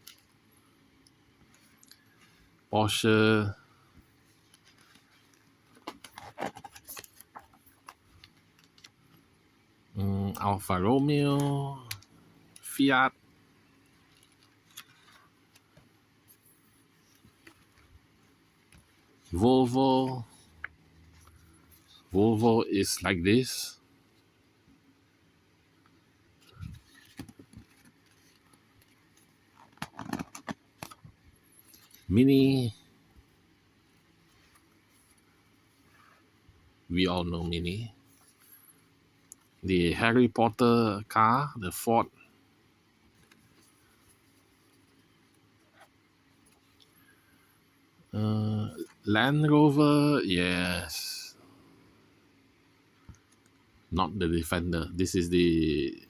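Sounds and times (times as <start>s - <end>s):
magazine pages rustling: 4.1s - 9.3s, 13.7s - 22.5s, 26.4s - 32.2s, 43.1s - 47.2s.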